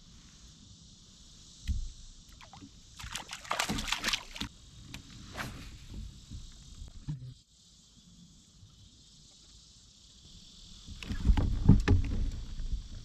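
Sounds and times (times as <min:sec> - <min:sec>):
water sloshing around kayak: 0:02.3 - 0:04.5
splashy clatter: 0:02.4 - 0:04.5.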